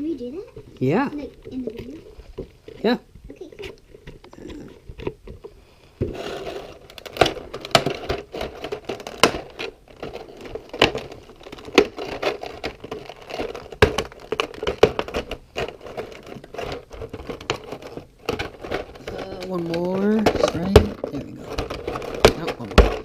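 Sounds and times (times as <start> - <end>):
sharp clicks and cracks: 0.5 - 23.0
packaging crinkling: 6.0 - 23.0.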